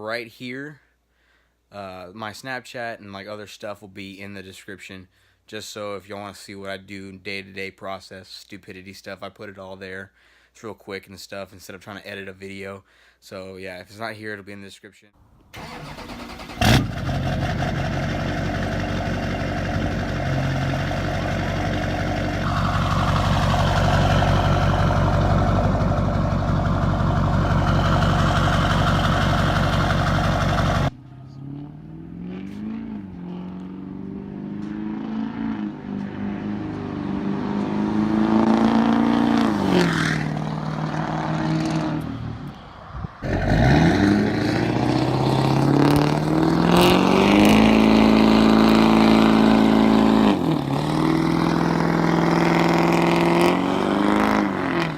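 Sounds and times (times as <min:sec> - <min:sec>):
diesel truck engine revving: 0:15.6 - 0:42.5, 0:43.2 - 0:54.9.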